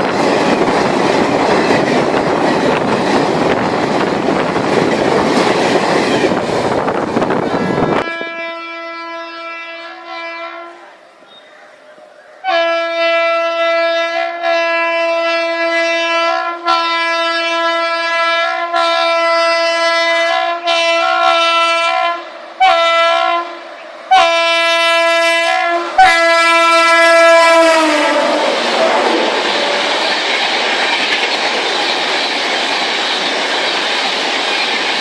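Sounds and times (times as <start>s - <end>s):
train horn blasts: 7.4s - 11.0s, 12.4s - 29.3s.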